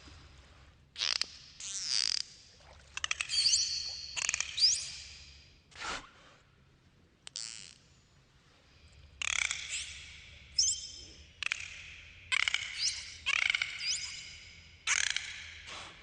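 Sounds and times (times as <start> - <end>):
dolphin whistles: 12.3 - 15.2.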